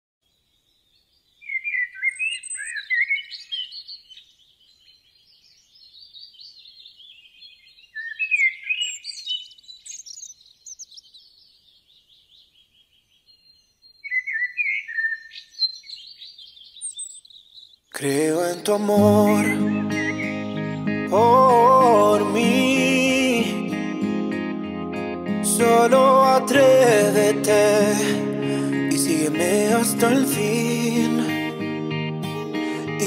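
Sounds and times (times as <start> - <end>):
birds chirping and warbling: 0.3 - 18.0, 18.6 - 33.0.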